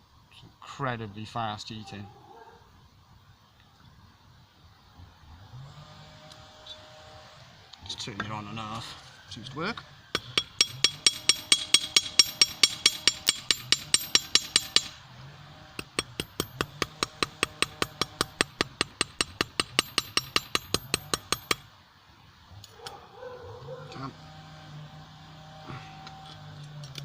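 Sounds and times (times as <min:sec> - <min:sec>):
hammer striking ringing anvil: 0:10.2 - 0:15.0.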